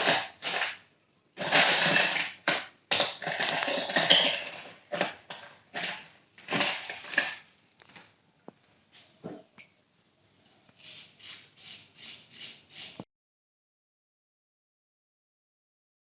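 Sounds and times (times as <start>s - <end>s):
hard objects clattering and scraping: 0.0s - 7.5s.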